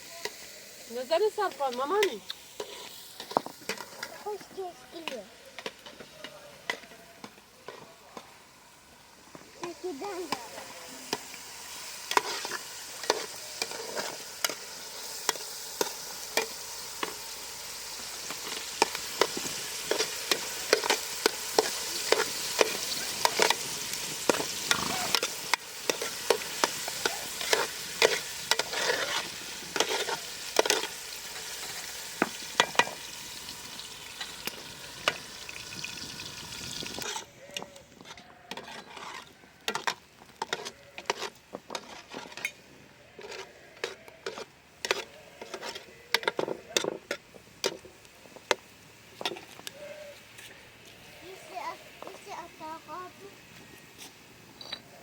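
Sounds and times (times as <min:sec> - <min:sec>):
food sizzling in a pan: 0:00.0 - 0:37.3, 0:44.1 - 0:55.0
utensil scraping a pan: 0:01.1 - 0:07.8, 0:09.6 - 0:47.9.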